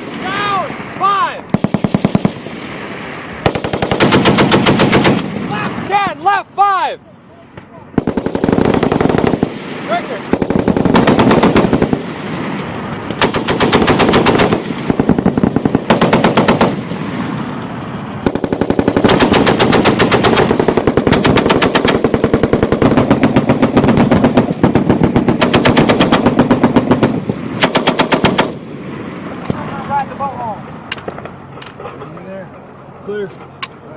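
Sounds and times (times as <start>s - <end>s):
machine-gun fire bursts: 1.5s - 2.5s, 3.4s - 5.4s, 8.0s - 9.6s, 10.3s - 12.1s, 13.2s - 16.9s, 18.2s - 28.6s.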